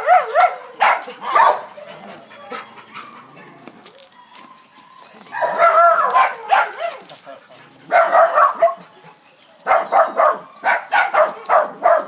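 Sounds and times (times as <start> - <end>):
dog barking and yipping: 0.0 - 3.4, 5.3 - 9.0, 9.6 - 12.0.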